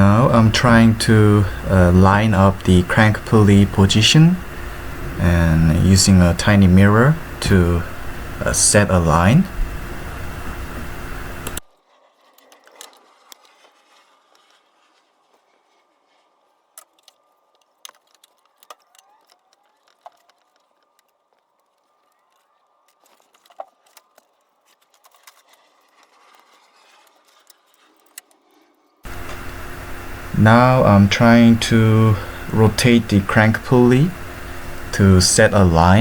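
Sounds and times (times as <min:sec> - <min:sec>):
faint hiss: 0:29.1 - 0:36.0.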